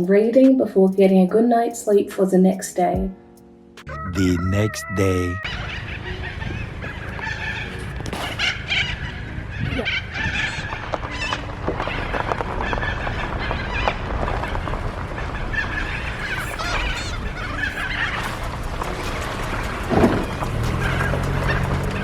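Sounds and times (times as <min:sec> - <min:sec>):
birds calling and chattering: 0:05.4 - 0:22.0.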